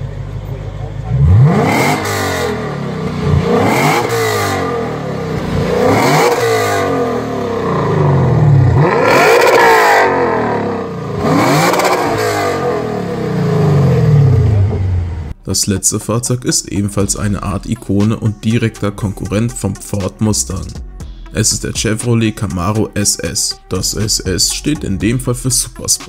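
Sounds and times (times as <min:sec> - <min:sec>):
car engine revving: 0:00.0 - 0:15.4.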